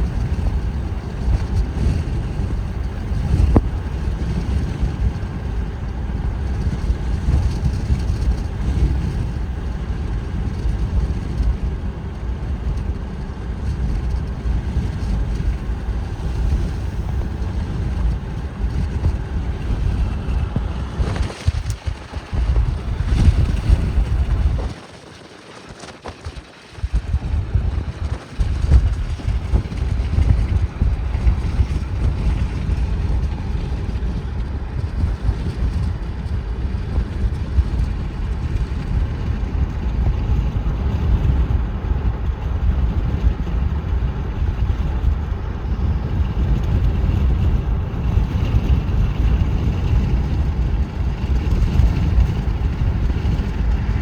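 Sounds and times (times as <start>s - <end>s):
car road noise: 0.0s - 24.7s
wind buffeting microphone: 0.0s - 54.0s.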